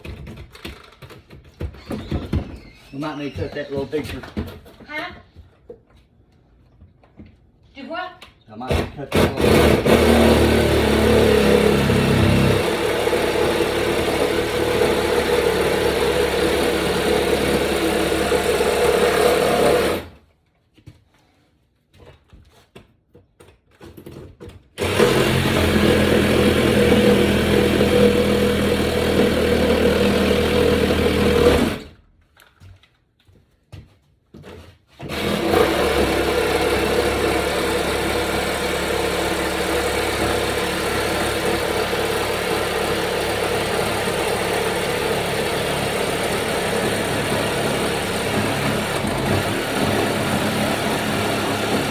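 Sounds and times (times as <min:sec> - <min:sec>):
electric power saw cutting: 0:09.2 - 0:20.2, 0:24.8 - 0:32.0, 0:35.0 - 0:51.9.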